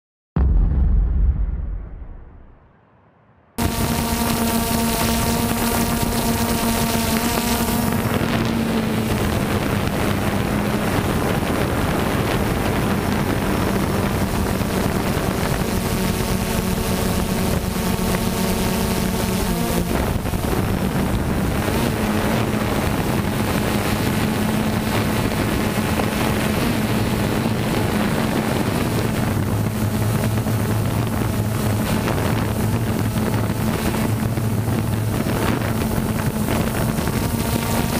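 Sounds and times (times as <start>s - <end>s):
drone propellers humming: 3.6s - 37.9s
wind noise on microphone: 3.6s - 37.9s.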